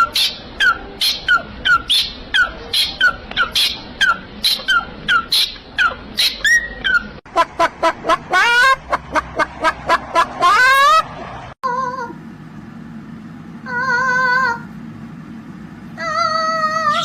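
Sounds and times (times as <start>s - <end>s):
bird chirping loudly: 0.0s - 7.1s
other bird calls: 0.0s - 11.1s.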